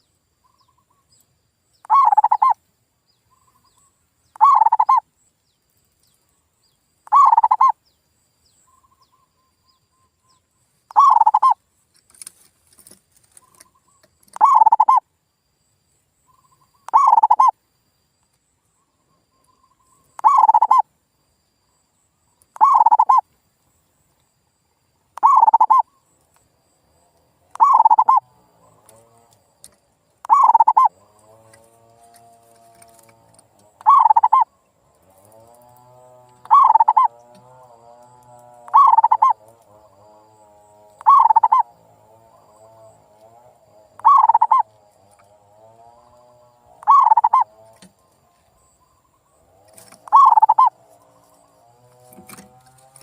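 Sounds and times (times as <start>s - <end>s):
dove cooing: 1.8s - 2.6s, 4.4s - 5.0s, 7.0s - 7.8s, 10.9s - 11.6s, 13.4s - 15.0s, 16.8s - 17.5s, 20.2s - 20.8s, 22.6s - 23.2s, 25.2s - 25.9s, 27.5s - 29.3s, 30.2s - 34.5s, 35.1s - 48.0s, 49.0s - 53.0s.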